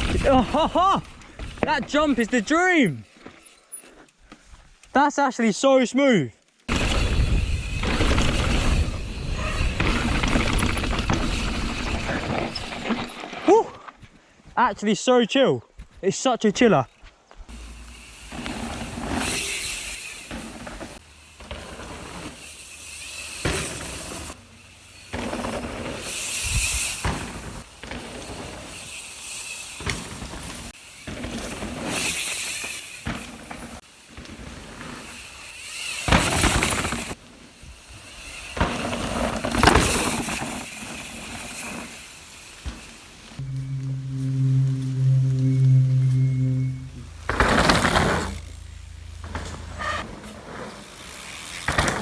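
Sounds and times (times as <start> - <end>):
bike chain and frame clattering: 0.2 - 4.1, 6.7 - 13.9, 17.5 - 43.4, 47.2 - 52.0
bike tyre and air rush: 6.7 - 13.3, 17.5 - 52.0.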